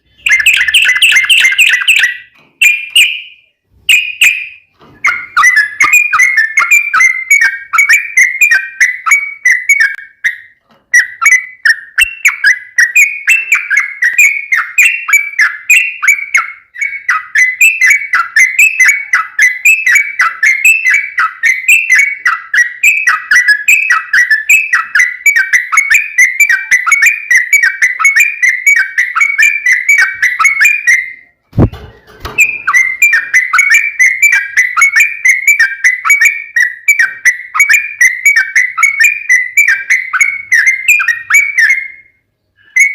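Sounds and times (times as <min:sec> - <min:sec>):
bird singing bubbly whistles: 0:00.0 - 0:31.7, 0:32.4 - 0:42.9
short low thump: 0:31.5 - 0:32.4.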